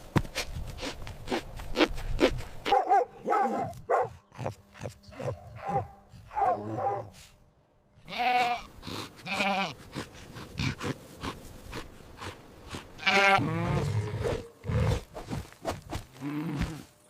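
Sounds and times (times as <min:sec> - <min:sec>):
dog barking: 0:02.7 - 0:04.2, 0:05.2 - 0:07.1
sheep bleating: 0:08.0 - 0:09.8, 0:13.0 - 0:14.1.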